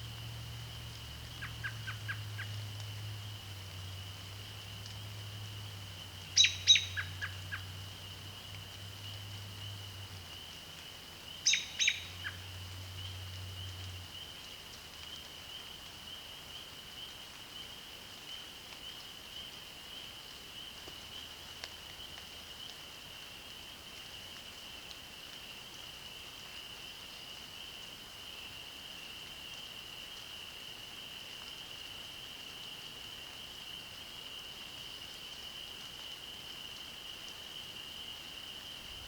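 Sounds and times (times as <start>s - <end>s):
chorus of calling frogs or insects: 0.0s - 24.6s, 25.2s - 39.0s.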